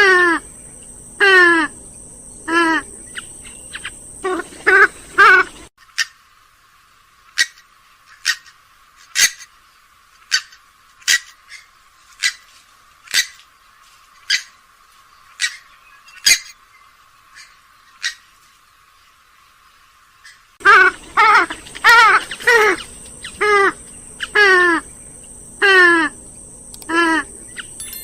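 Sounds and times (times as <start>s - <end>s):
bird loud full call: 0.0s - 1.8s, 2.4s - 6.2s, 20.2s - 26.2s, 26.9s - 27.8s.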